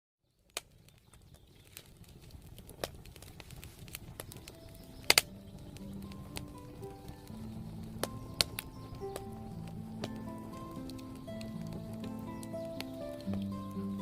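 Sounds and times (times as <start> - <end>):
campfire crackling and popping: 0.2 - 14.0
low rumble: 2.3 - 14.0
faint music with held notes: 3.5 - 14.0.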